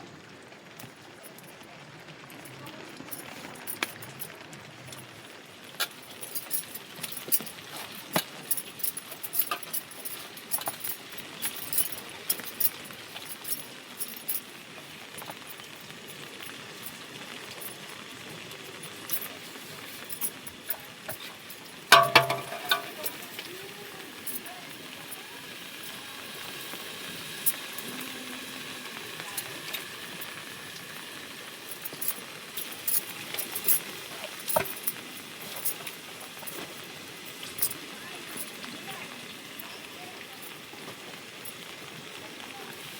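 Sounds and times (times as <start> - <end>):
light clicks and clinks: 2.3 - 26.6, 31.6 - 39.0.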